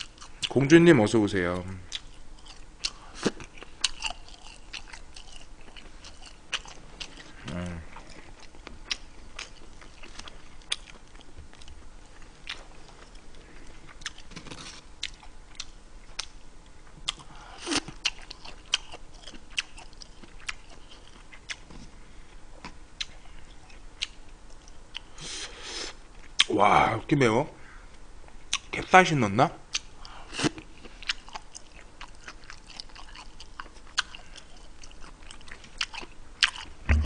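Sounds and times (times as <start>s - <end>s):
person chewing: 0.0s - 0.5s, 1.9s - 16.4s, 17.0s - 21.8s, 29.7s - 37.0s.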